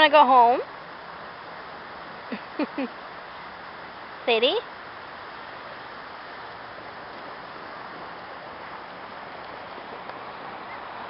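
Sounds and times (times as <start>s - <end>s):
small waves breaking on beach: 0.0s - 11.0s.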